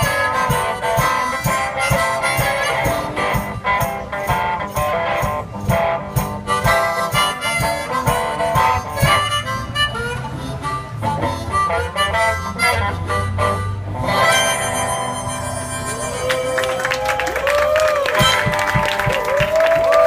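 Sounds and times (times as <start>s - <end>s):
acoustic guitar: 0.0s - 16.8s
harmonica melody: 0.0s - 17.0s, 18.1s - 18.9s
held bass note: 7.8s - 16.6s.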